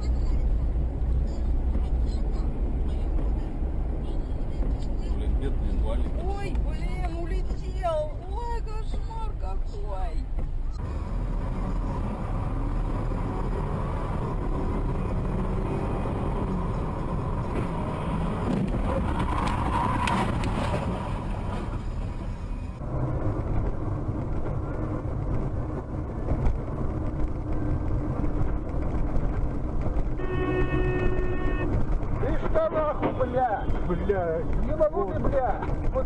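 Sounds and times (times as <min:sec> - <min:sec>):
car engine and road noise: 0:00.0 - 0:36.0
car horn: 0:30.2 - 0:31.9.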